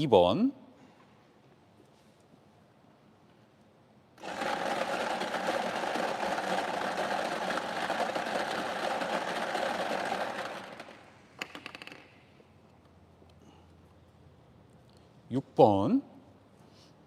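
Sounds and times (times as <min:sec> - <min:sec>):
machine motor and blower: 0:04.2 - 0:11.0
lottery balls rattling: 0:04.2 - 0:12.1.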